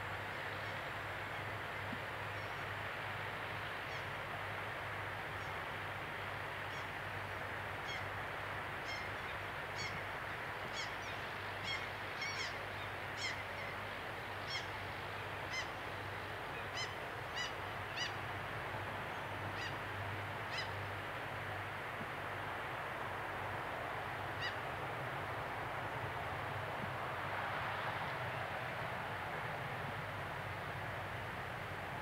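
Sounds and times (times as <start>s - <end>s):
steady outdoor hiss: 0.0s - 32.0s
bird calling: 10.7s - 12.6s.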